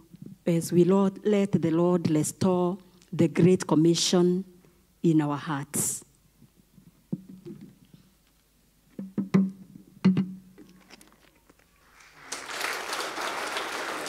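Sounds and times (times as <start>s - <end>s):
plucked string notes: 9.0s - 10.5s
congregation applauding: 11.8s - 14.0s.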